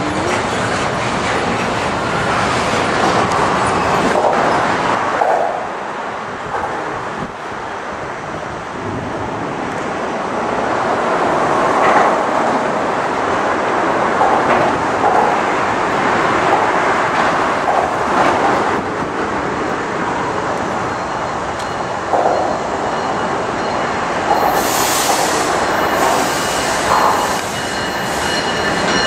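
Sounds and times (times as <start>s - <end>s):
freight train rumbling: 0.0s - 29.0s
high hiss: 24.4s - 28.3s.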